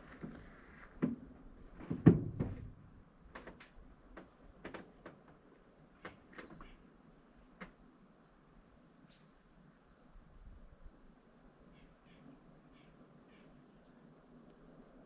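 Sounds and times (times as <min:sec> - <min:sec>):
knocks and sharp taps: 0:01.8 - 0:02.7
dull thump: 0:01.8 - 0:02.9.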